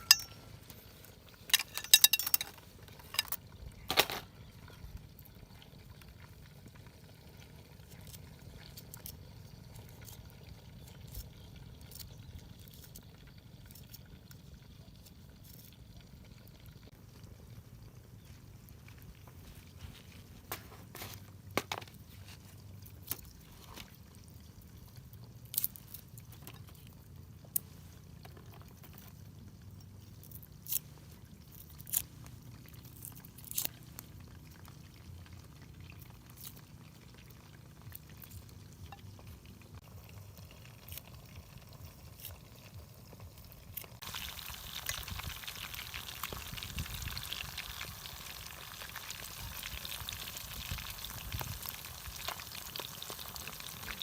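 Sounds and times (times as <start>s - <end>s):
fish sizzling in hot oil: 33.8s - 54.0s.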